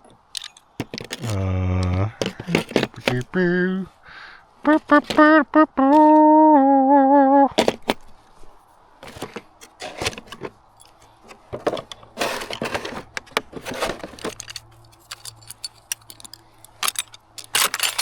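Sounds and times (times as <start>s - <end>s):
metal hand tools clinking: 0.3s - 1.4s, 2.2s - 3.4s, 10.8s - 11.4s, 13.7s - 18.0s.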